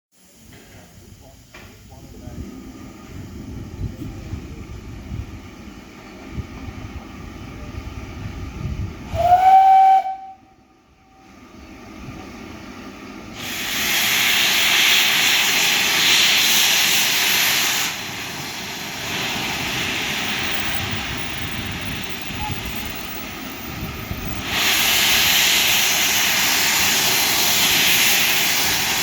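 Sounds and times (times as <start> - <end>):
steam locomotive whistle: 9.1 - 11.3, 22.0 - 23.2
hissing steam release: 13.2 - 29.0.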